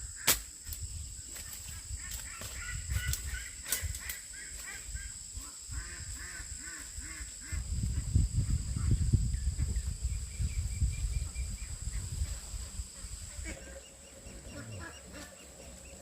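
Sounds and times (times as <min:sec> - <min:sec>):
fowl honking calls: 0:13.0 - 0:16.0.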